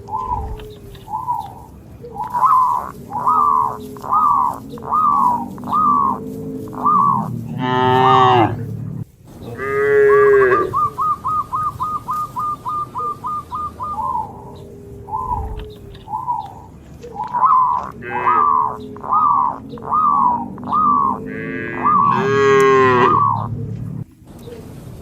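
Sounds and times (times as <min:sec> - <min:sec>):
short high chirping calls: 0:00.0 - 0:07.4, 0:10.6 - 0:23.8
cattle mooing: 0:02.4 - 0:10.9, 0:14.4 - 0:16.7, 0:17.3 - 0:24.0.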